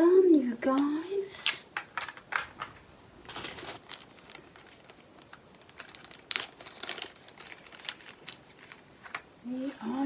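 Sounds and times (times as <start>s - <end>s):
plastic bags crinkling: 2.4s - 9.1s.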